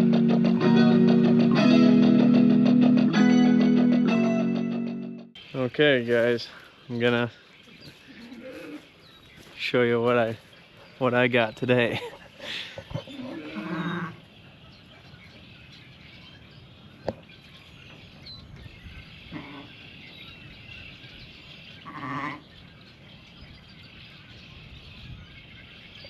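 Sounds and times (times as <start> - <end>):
sheep bleating: 8.2 - 8.9, 13.1 - 14.2, 21.8 - 22.4.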